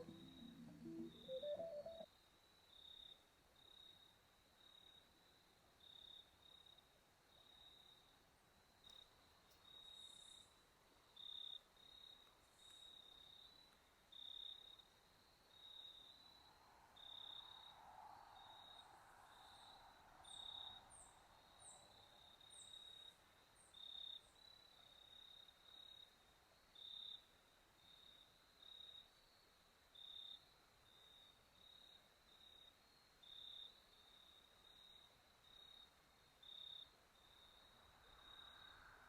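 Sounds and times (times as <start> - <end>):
crickets chirping: 11.2 - 39.0.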